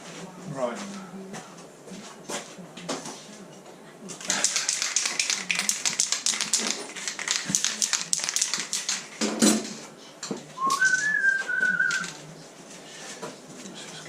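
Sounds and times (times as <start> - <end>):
person whistling: 10.6 - 12.1.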